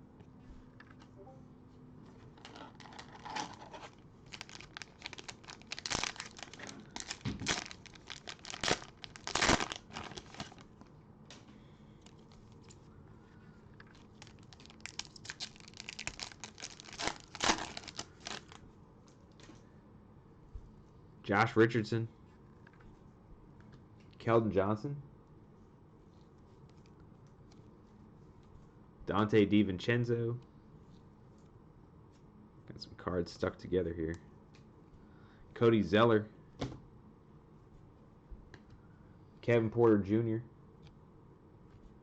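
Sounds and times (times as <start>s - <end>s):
cellophane wrappers tearing and crinkling: 2.5s - 10.9s, 13.9s - 18.6s.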